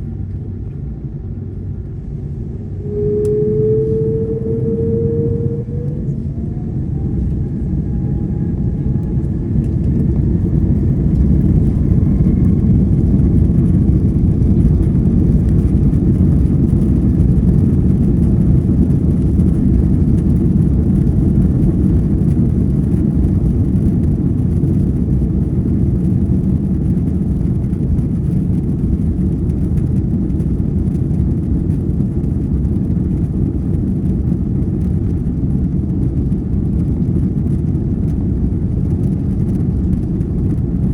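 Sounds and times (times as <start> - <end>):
faint rising engine tone: 0.0 - 15.9
jet engines rumbling: 0.0 - 40.9.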